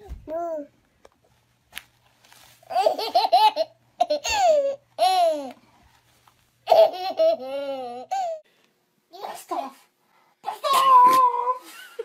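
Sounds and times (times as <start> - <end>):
baby giggling: 2.7 - 5.5, 6.7 - 8.4.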